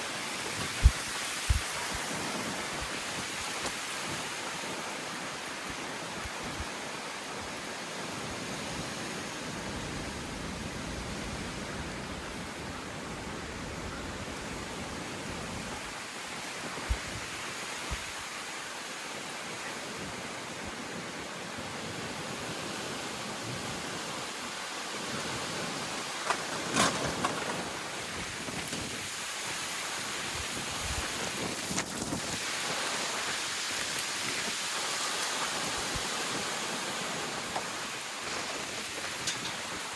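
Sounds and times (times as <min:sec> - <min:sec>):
wind buffeting microphone: 0:00.2 - 0:04.8, 0:08.7 - 0:18.3, 0:25.1 - 0:39.9.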